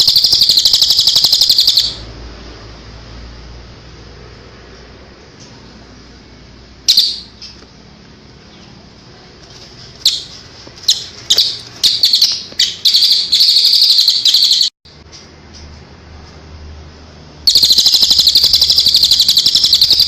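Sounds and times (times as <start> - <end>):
songbird harsh rasping calls: 10.9 - 14.7.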